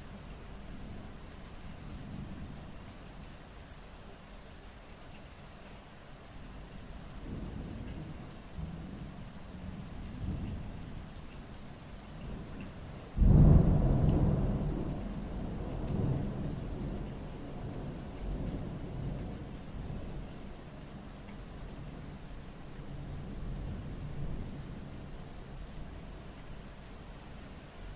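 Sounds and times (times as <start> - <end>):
rain falling: 0.0 - 27.9
loud thunderclap: 13.2 - 14.9
thunder rumbling: 13.2 - 20.1.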